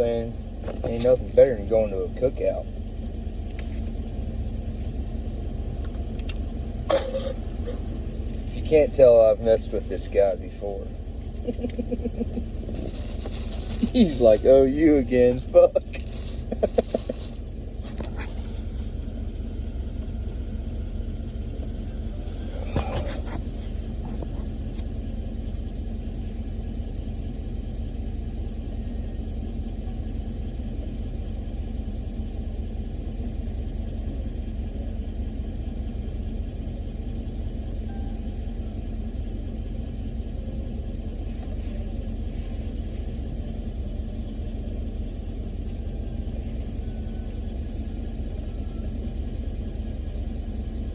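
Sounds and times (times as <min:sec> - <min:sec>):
engine idling: 0:00.0 - 0:50.9.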